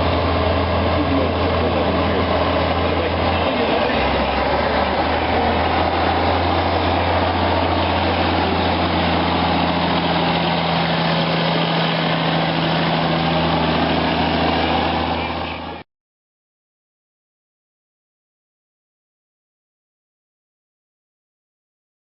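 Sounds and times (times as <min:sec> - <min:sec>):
diesel truck engine idling: 0:00.0 - 0:15.8.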